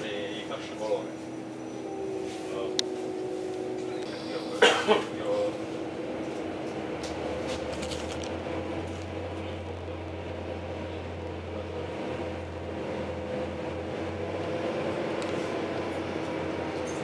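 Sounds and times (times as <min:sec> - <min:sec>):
faint whining tones: 0:00.0 - 0:06.8
train carriage electrical hum: 0:00.0 - 0:17.0.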